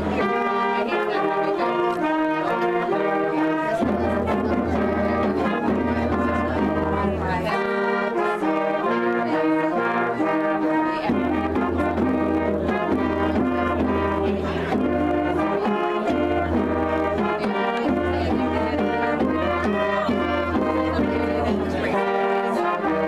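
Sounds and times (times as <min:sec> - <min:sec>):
brass ensemble playing chords: 0:00.0 - 0:23.0.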